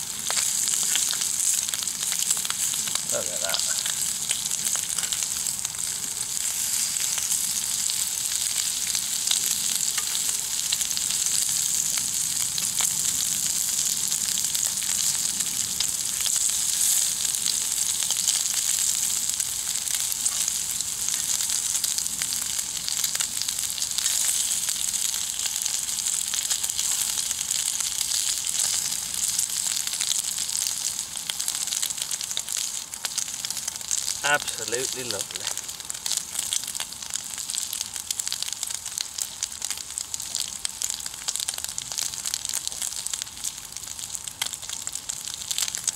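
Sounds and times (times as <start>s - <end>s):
bacon sizzling in a pan: 0.0s - 45.9s.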